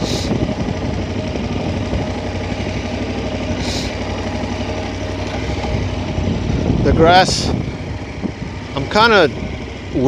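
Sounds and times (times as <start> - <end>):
motorcycle engine running: 0.0 - 10.0
short hisses: 3.5 - 4.0.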